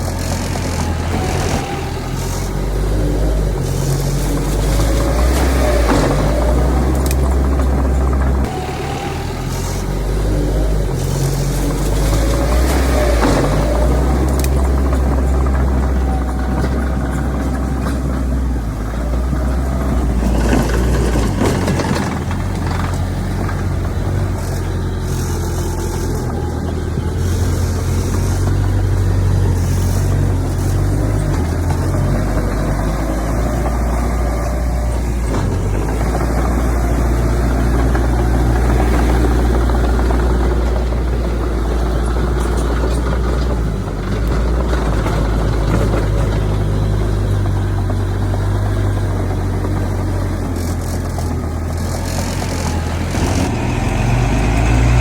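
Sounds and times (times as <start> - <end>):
bulldozer engine rumble: 0.0 - 55.0
dump trucks running: 0.0 - 55.0.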